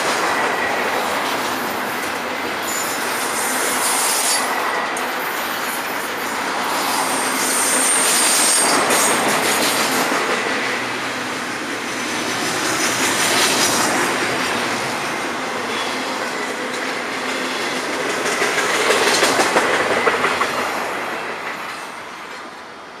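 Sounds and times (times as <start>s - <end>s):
freight train cars clattering on rails: 0.0s - 22.7s
high wheel squeal: 2.6s - 9.3s.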